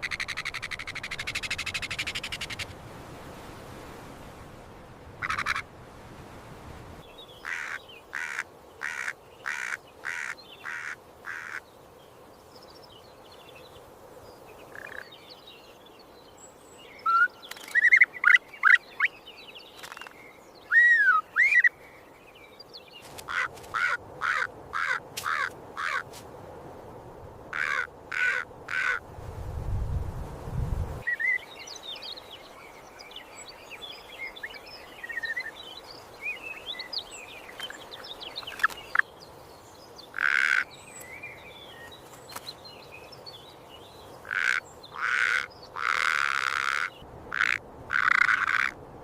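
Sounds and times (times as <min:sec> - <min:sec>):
faint steady hiss: 0:00.0 - 0:49.0
harsh caw-like bird calls: 0:05.2 - 0:05.6, 0:07.4 - 0:11.7, 0:23.2 - 0:26.1, 0:27.5 - 0:29.0, 0:40.1 - 0:40.7, 0:44.2 - 0:48.8.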